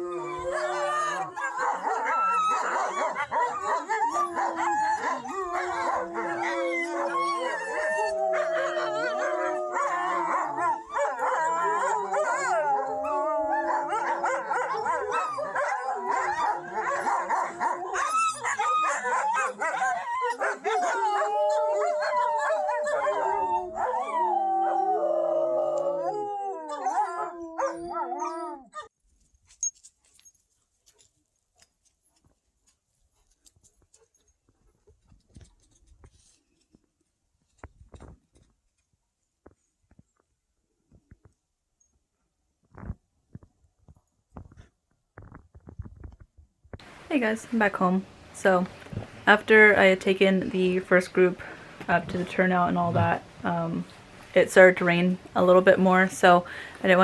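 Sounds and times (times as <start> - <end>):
wolfdogs howling in chorus: 0.0 - 28.8
dogs yipping and yelping: 0.0 - 28.9.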